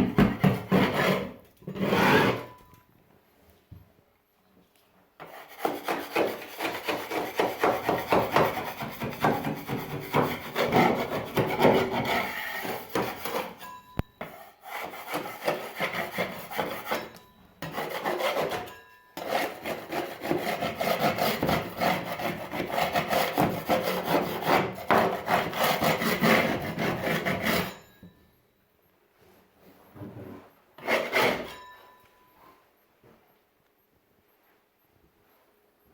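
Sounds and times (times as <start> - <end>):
hand scraper scraping paint: 0.0 - 2.6, 5.2 - 13.6, 14.2 - 27.7, 30.8 - 31.6.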